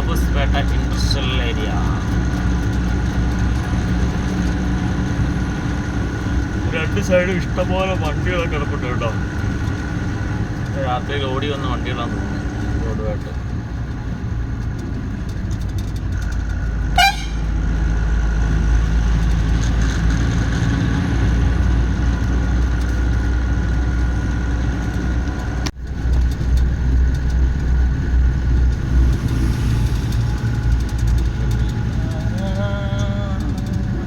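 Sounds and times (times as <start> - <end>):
truck engine running: 0.0 - 34.0
truck horn toot: 17.0 - 17.7.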